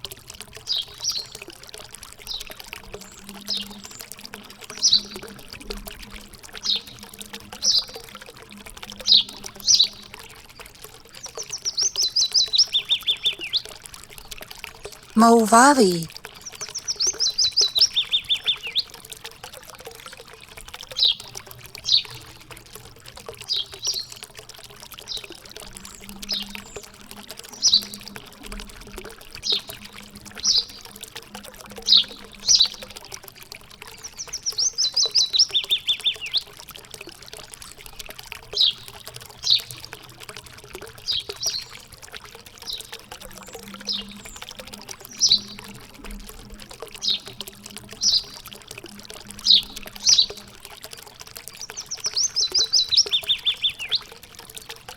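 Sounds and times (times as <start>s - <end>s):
running water: 0.0s - 54.9s
songbirds calling: 48.0s - 48.4s, 51.6s - 54.1s.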